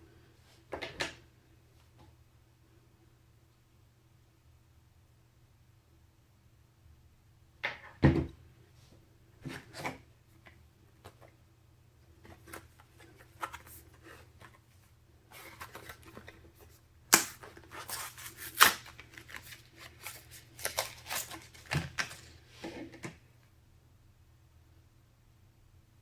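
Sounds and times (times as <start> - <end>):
hands handling computer parts: 12.2 - 23.2.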